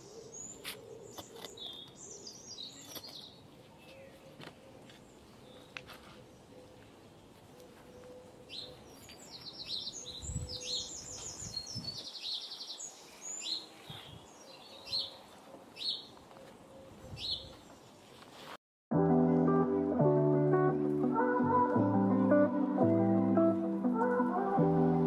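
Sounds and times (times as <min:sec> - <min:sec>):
songbirds singing: 0:00.0 - 0:18.2.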